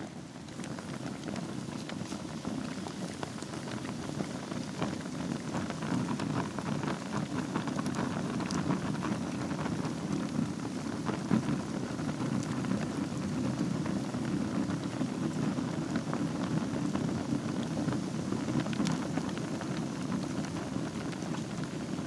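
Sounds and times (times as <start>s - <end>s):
fire crackles and pops: 0.0s - 22.0s
wood fire burning: 0.0s - 22.0s.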